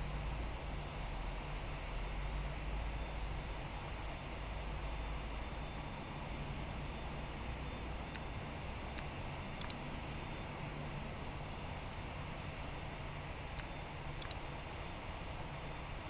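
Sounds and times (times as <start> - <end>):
faint sharp clicks: 8.1 - 9.9, 13.5 - 14.5.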